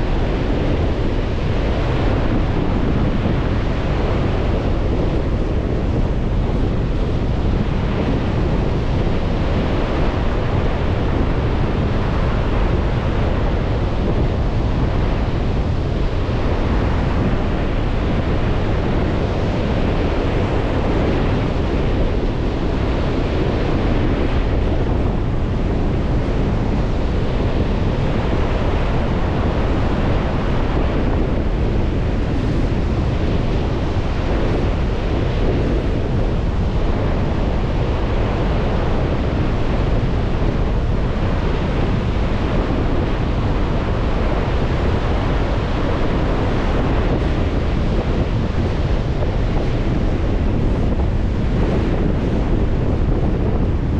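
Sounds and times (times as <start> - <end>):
waves washing onto shore: 0.0 - 53.9
wind buffeting microphone: 0.0 - 53.9.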